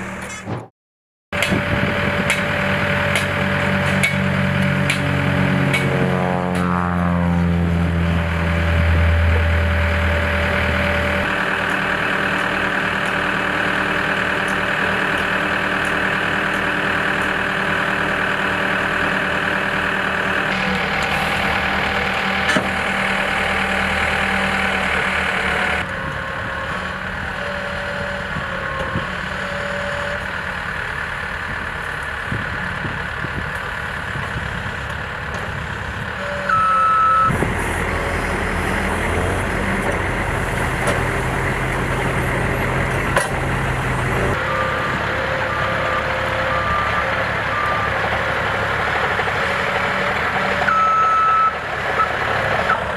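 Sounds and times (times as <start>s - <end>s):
heavy equipment engine running: 0.0s - 0.7s, 1.3s - 52.9s
reversing beep: 36.2s - 37.4s, 44.4s - 48.4s, 50.6s - 52.8s.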